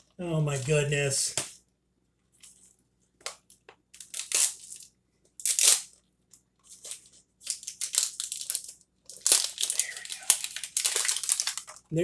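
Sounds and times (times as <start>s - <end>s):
plastic packaging crinkling and tearing: 3.3s - 6.0s, 6.6s - 11.9s.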